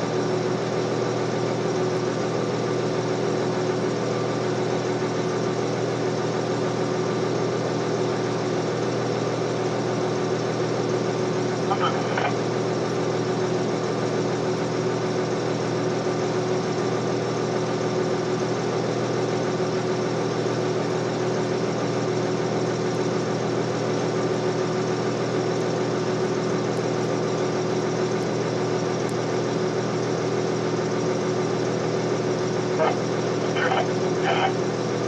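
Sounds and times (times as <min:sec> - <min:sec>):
heavy diesel engine idling: 0:00.0 - 0:35.0.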